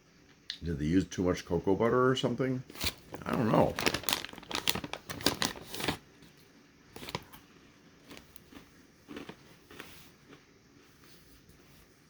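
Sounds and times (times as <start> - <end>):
granola crunching while chewed: 2.7 - 6.0, 7.0 - 10.5.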